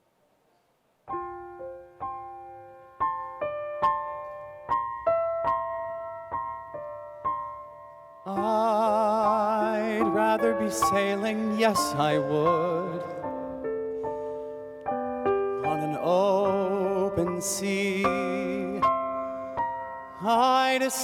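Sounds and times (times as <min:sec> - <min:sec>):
gentle piano chords: 0:01.0 - 0:21.0
person singing with vibrato: 0:08.2 - 0:13.7, 0:15.6 - 0:21.0.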